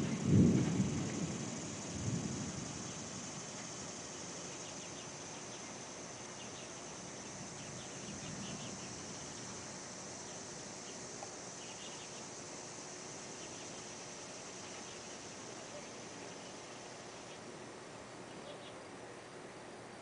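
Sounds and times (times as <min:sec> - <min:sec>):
distant thunder rumble: 0:00.0 - 0:10.7
high insect drone: 0:00.0 - 0:20.0
insect chirps: 0:00.0 - 0:20.0.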